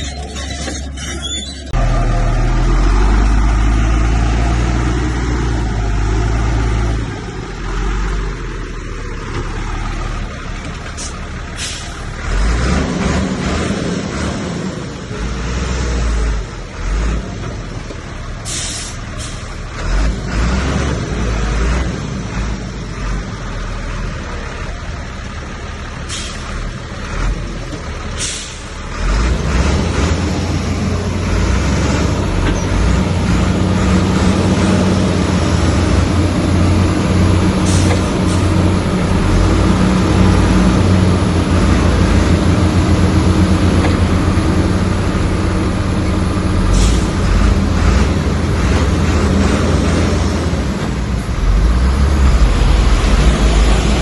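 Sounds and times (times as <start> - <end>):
heavy diesel engine running: 0.0 - 54.0
short sharp hisses: 18.5 - 19.4.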